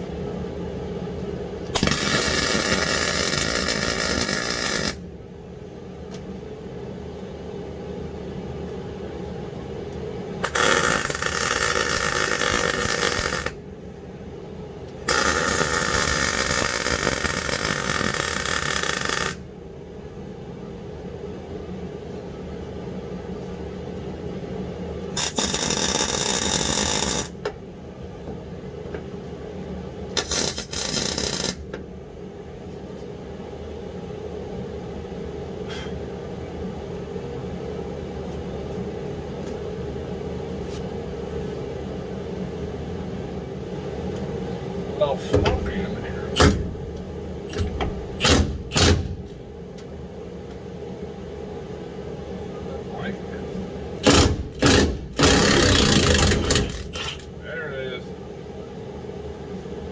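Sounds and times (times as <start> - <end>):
steady low hum: 0.0 - 59.9
electric welder crackling: 1.8 - 5.0, 10.4 - 13.6, 15.1 - 19.4, 25.1 - 27.4, 30.2 - 31.7, 47.5 - 49.5, 54.0 - 57.4.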